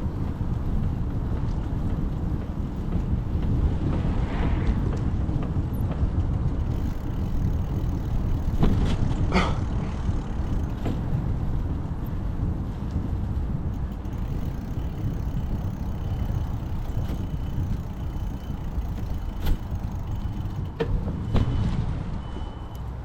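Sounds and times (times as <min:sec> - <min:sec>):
wind and road noise rumble: 0:00.0 - 0:23.0.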